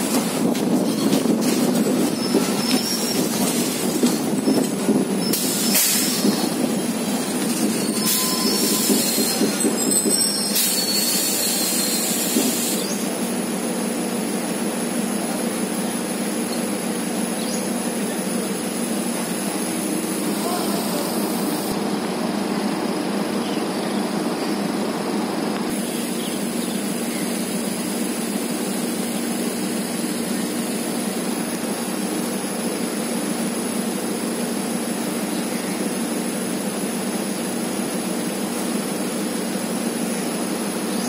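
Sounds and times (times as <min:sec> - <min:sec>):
train wheels rumbling on track: 0:00.0 - 0:41.0
high wheel squeal: 0:00.6 - 0:13.1.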